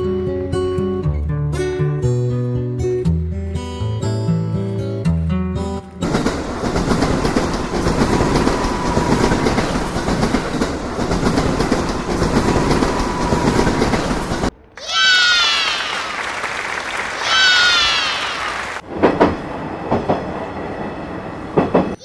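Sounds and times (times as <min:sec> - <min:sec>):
wheels clicking over rails: 0:06.0 - 0:14.5, 0:17.2 - 0:22.0
train rumbling on track: 0:06.0 - 0:14.6, 0:16.9 - 0:22.0.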